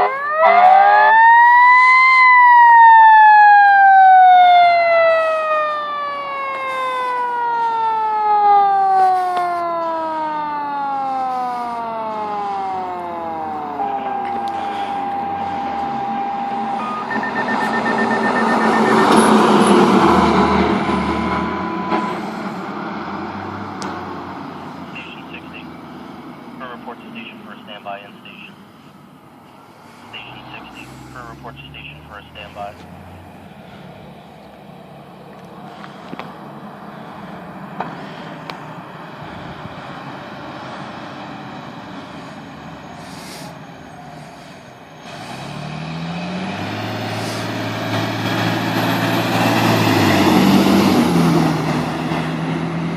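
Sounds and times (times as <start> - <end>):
siren tone: 0.0 - 23.7
fire truck driving past: 0.0 - 52.9
rapid electronic beeps: 13.8 - 19.8.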